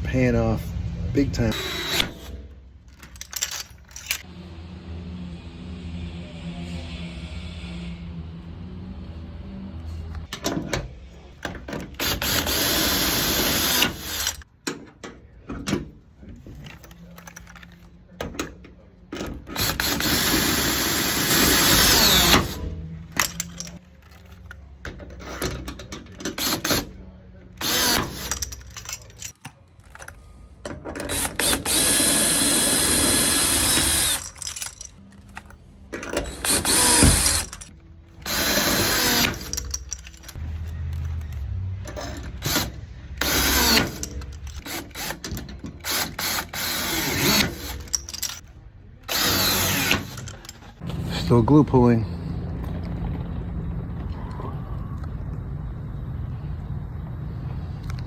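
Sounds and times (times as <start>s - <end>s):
drill running in short bursts: 1.5s - 2.4s, 19.6s - 22.6s, 31.1s - 34.3s, 36.3s - 37.6s.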